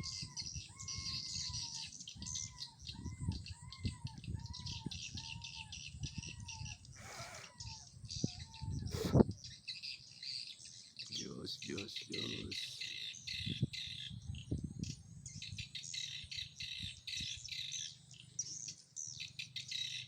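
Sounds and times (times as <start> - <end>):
bird lure call: 0.0 - 9.8, 10.7 - 14.1.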